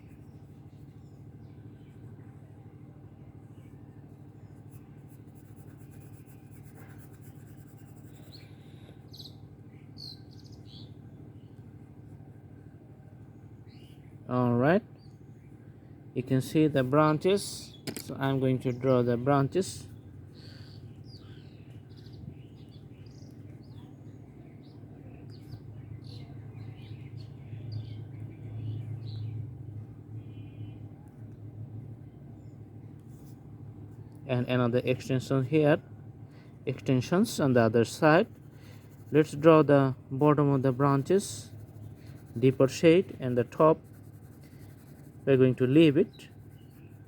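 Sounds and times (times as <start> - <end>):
faint bird chirps: 0.0 - 11.7, 13.2 - 14.3, 19.9 - 29.5, 30.1 - 31.2, 45.8 - 47.0
steady low hum: 0.0 - 47.0
coloring stick scratching paper: 4.7 - 8.4, 37.4 - 47.0
low hum: 39.9 - 45.2.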